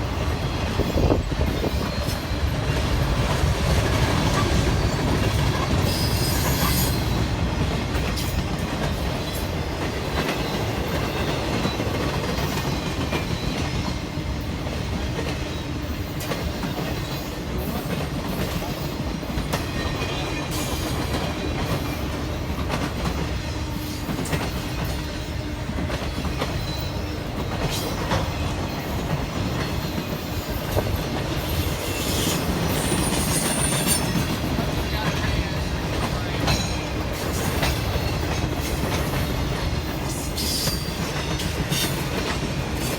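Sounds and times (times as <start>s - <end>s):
train cars rolling past: 0.0s - 42.9s
high wheel squeals: 5.8s - 7.2s, 31.5s - 34.4s.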